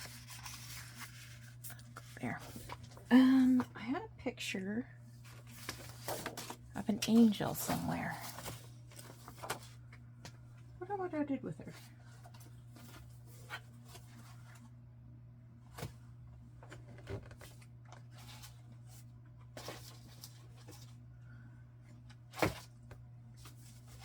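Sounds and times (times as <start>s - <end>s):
paper and card rustling: 0.0s - 3.7s, 5.1s - 10.0s, 16.6s - 21.0s, 22.0s - 24.0s.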